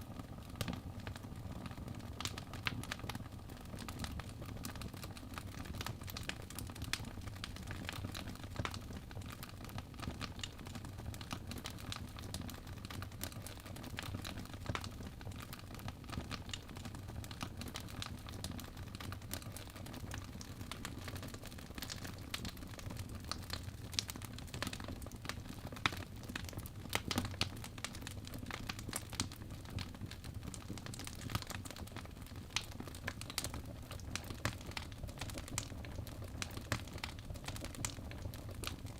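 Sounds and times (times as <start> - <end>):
burning logs popping and snapping: 17.3 - 38.9.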